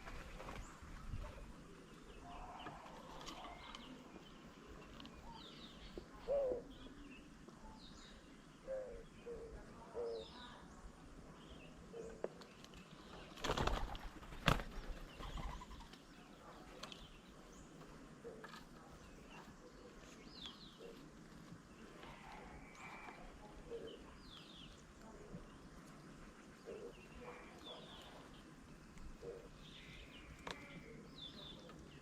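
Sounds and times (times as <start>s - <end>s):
wing flapping: 0.0s - 1.5s, 12.8s - 16.1s.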